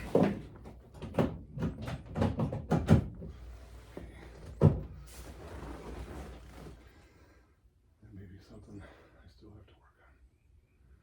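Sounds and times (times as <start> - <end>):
knocks and thuds: 0.0 - 3.3.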